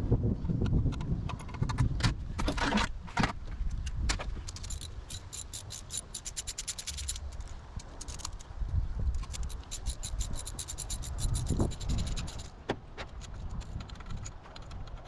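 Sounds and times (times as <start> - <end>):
quick clicks: 3.7 - 8.5, 9.1 - 15.0
metal hand tools clinking: 4.5 - 8.5, 9.2 - 12.6.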